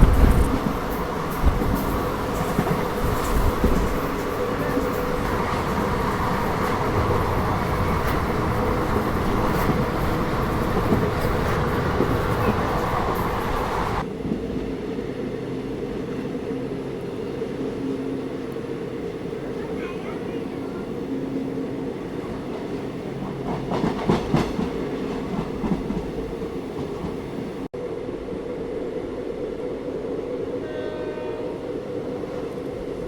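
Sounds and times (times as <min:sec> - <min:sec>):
train rumbling on rails: 0:00.0 - 0:33.0.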